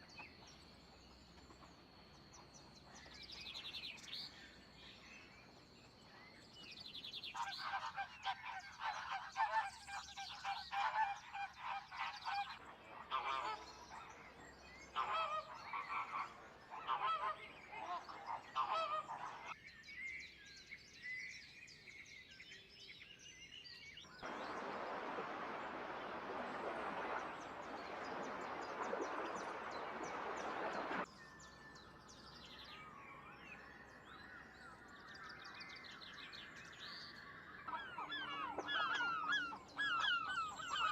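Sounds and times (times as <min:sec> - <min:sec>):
birds calling: 0:07.2 - 0:19.6, 0:24.1 - 0:31.1, 0:36.8 - 0:40.9.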